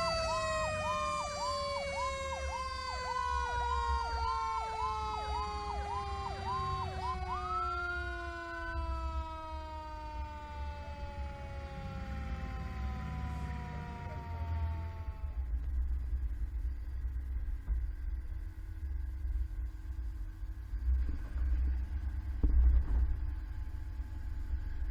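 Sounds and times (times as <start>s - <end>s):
electronic siren yelping: 0.0s - 15.5s
low vehicle rumble: 0.0s - 24.9s
steady siren tone: 0.0s - 24.9s.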